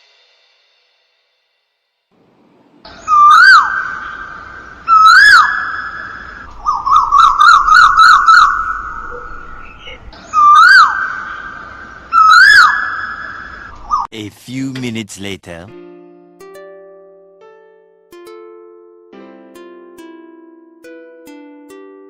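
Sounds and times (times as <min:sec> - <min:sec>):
whistle-like bird calls: 0:02.9 - 0:14.1.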